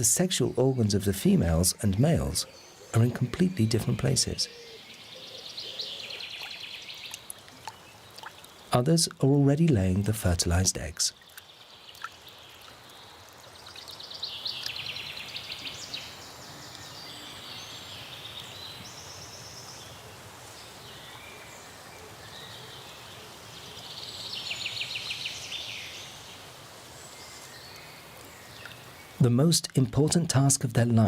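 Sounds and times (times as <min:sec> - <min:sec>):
soft outdoor background: 0:00.0 - 0:31.0.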